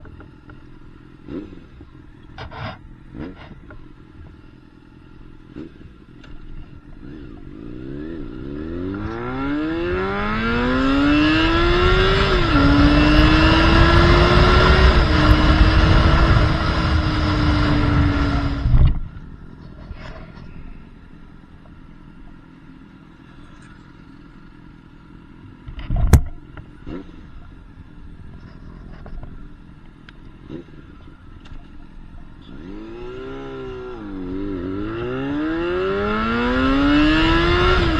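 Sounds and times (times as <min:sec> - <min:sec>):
motorcycle engine revving: 0:00.0 - 0:37.9
exhaust pop: 0:25.7 - 0:27.5.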